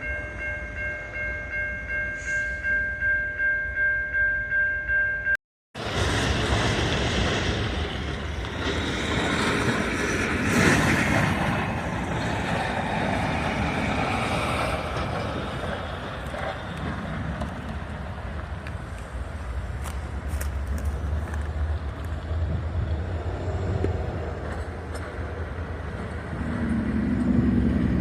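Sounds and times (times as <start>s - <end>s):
train rumbling past: 5.8s - 28.0s
wind buffeting microphone: 5.8s - 28.0s.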